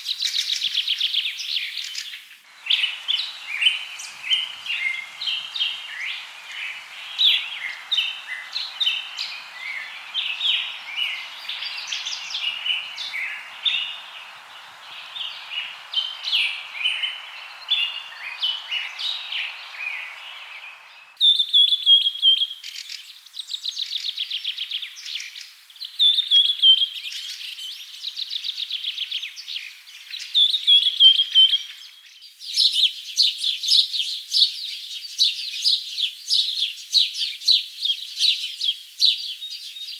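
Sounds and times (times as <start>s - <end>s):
wild birds chirping: 0.0s - 32.7s
steady hiss: 1.9s - 21.2s.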